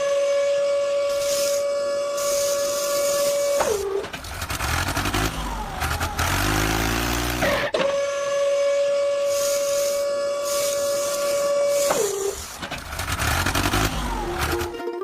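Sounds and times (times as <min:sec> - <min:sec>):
vehicle engine revving: 0:02.2 - 0:07.8, 0:09.4 - 0:14.8.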